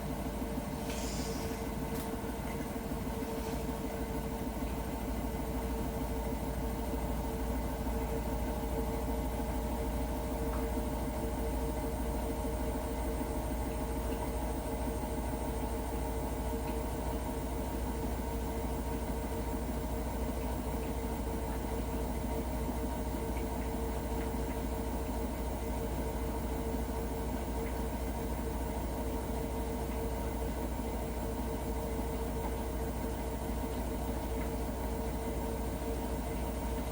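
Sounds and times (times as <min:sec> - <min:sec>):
washing machine droning hum: 0:00.0 - 0:36.9.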